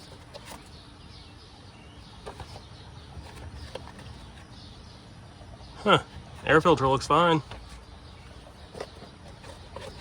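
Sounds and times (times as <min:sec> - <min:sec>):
birds chirping faintly: 0:00.0 - 0:10.0.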